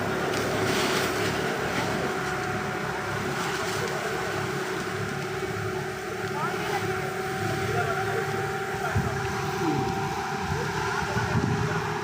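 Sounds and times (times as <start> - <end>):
wind noise: 10.4 - 12.0.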